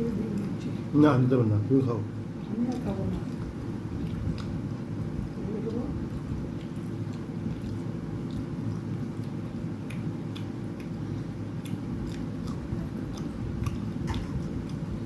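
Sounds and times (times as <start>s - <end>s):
steady low hum: 0.0s - 15.0s
mouth and food clicks: 2.7s - 5.1s, 6.0s - 11.0s, 11.6s - 15.0s
person chewing food: 2.7s - 5.4s, 6.0s - 15.0s.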